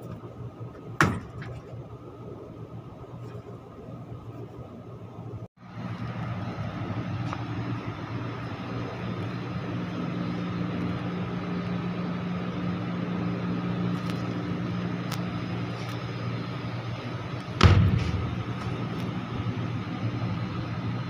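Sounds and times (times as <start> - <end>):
machinery humming: 0.0 - 21.0
loud bang: 17.6 - 18.6.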